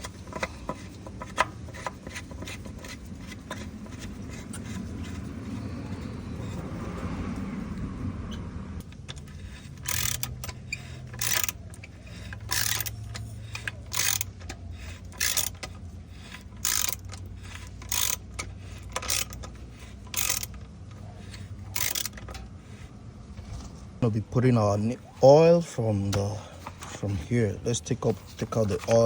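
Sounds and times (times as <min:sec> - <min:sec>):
hand ratchet clicking: 0:08.8 - 0:22.4.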